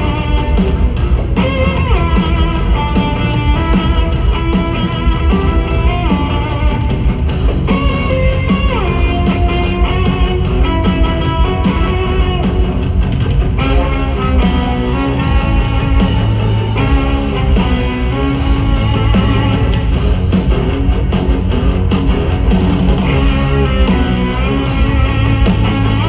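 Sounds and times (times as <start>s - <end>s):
driving drum beat: 0.0s - 26.0s
distorted cellos playing melody: 13.6s - 26.0s.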